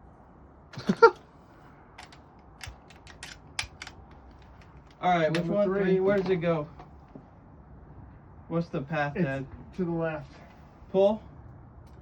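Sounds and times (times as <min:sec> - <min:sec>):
mechanical clicks and clacks: 0:02.0 - 0:05.5.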